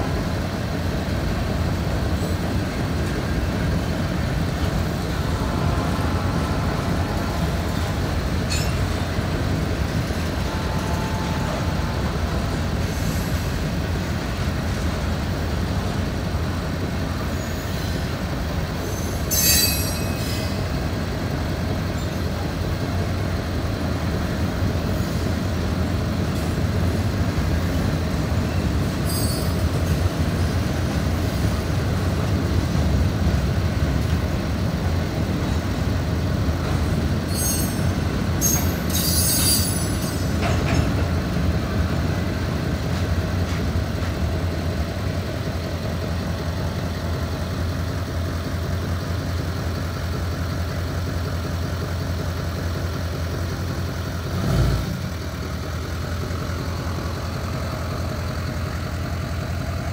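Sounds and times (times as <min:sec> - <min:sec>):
freight train wheels rumbling: 0:00.0 - 0:59.9
high wheel squeal: 0:04.8 - 0:09.2, 0:18.8 - 0:20.8, 0:28.9 - 0:30.0, 0:37.2 - 0:40.5.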